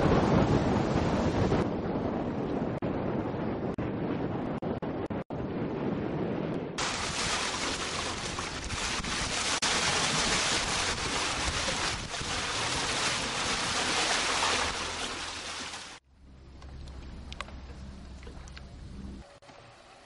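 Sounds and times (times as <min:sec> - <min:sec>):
wind noise on microphone: 0:00.0 - 0:14.0
water rushing past boat: 0:06.8 - 0:16.0.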